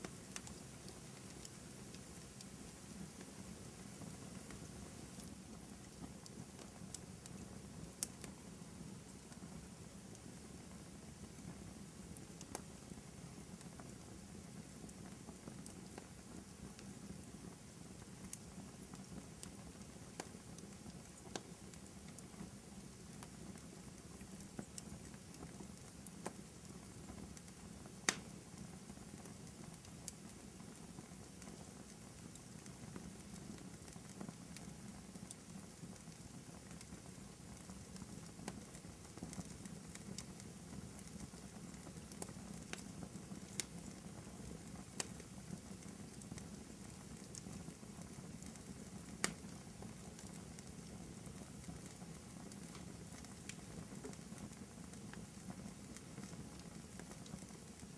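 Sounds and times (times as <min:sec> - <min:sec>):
fire flames burning: 0:00.0 - 0:57.9
wood fire crackles and pops: 0:00.0 - 0:57.9.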